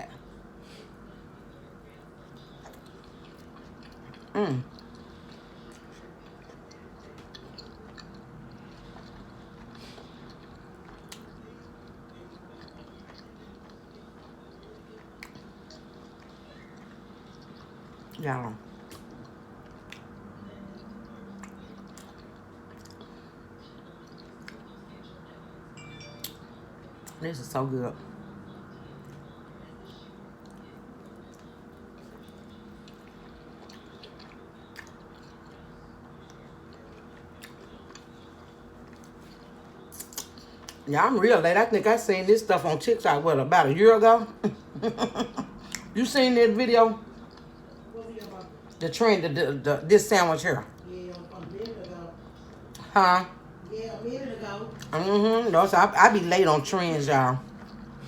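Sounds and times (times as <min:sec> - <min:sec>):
faint steady hum: 0:00.0 - 0:58.0
chewing with wet mouth clicks: 0:02.2 - 0:27.2, 0:28.8 - 0:40.9, 0:45.5 - 0:46.0, 0:47.0 - 0:48.8, 0:50.6 - 0:52.9, 0:57.4 - 0:58.0.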